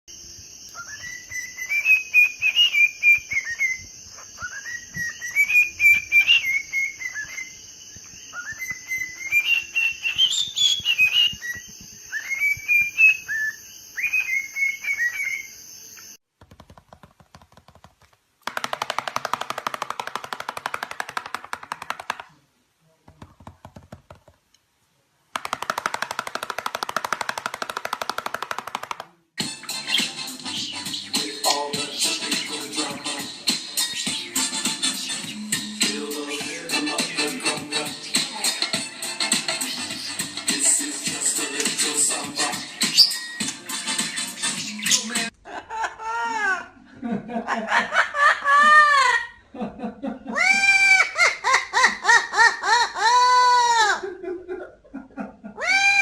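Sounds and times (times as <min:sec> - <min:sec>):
parrot whistling: 0:00.7 - 0:15.5, 0:29.4 - 0:36.8, 0:42.6 - 0:45.3
parrot clicking rattle: 0:16.6 - 0:22.3, 0:25.4 - 0:29.1.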